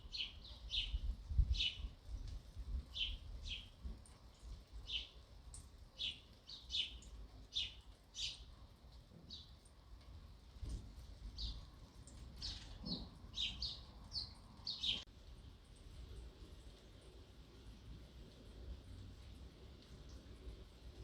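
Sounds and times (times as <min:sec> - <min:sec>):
sparrows chirping: 0:00.0 - 0:01.9, 0:02.9 - 0:05.3, 0:05.9 - 0:08.5, 0:09.2 - 0:09.6, 0:11.3 - 0:15.1.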